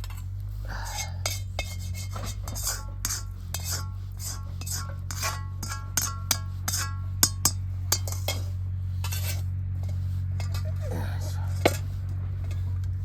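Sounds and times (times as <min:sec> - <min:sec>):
steady low hum: 0:00.0 - 0:13.0
metal utensil clinking on cookware: 0:00.9 - 0:09.4.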